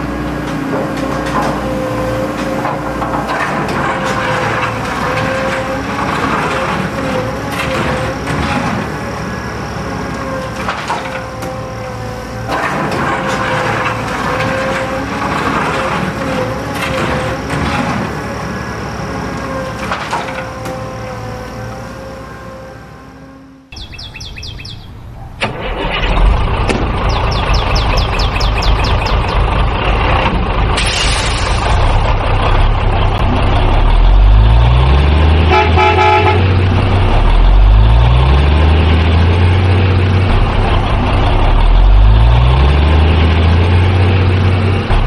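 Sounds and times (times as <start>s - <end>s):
heavy vehicle engine revving: 0.0s - 23.7s, 25.4s - 45.0s
horn honk: 20.4s - 23.7s, 35.4s - 36.6s.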